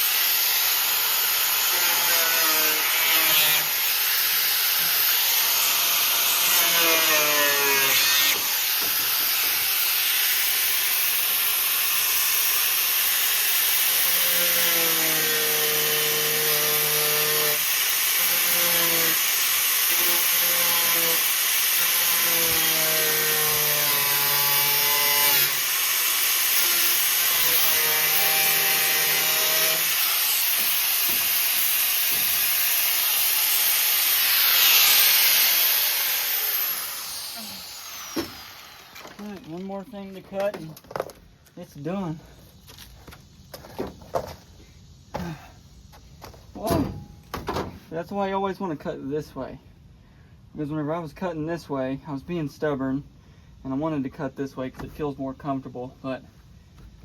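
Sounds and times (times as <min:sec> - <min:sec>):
angle grinder cutting sheet steel: 0:00.0 - 0:39.4.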